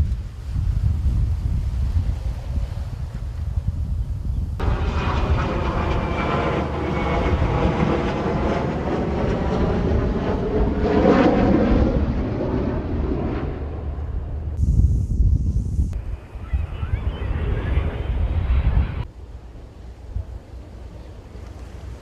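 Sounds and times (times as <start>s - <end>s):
wind rumble on microphone: 0.0s - 22.0s
aircraft flying past: 4.6s - 14.6s, 15.9s - 22.0s.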